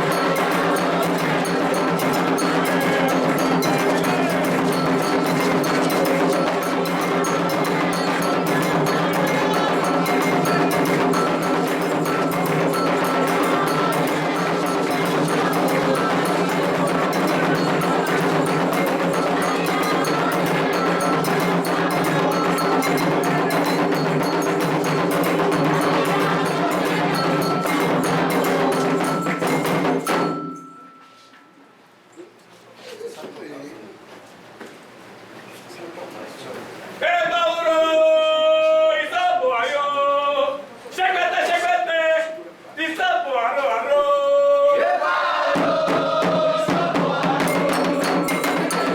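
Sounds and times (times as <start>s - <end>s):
hand drums playing fast rhythm: 0.0s - 30.9s, 45.6s - 48.9s
iron bell struck: 0.1s - 31.5s.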